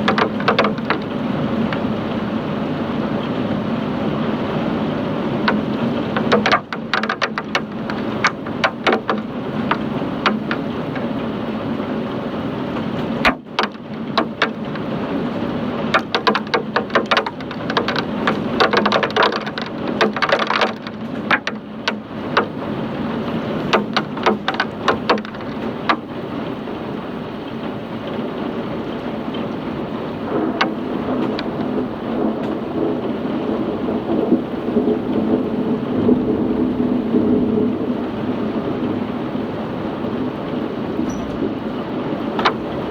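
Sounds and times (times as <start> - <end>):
hailstones clicking on hard surfaces: 0.0 - 2.0, 4.6 - 26.3, 30.2 - 35.2, 42.1 - 42.9
heavy rain and hail: 0.0 - 42.9.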